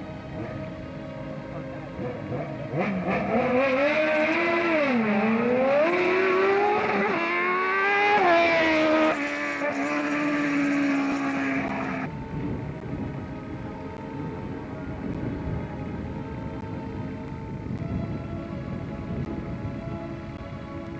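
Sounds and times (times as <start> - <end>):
rally car engine revving: 2.0 - 12.1.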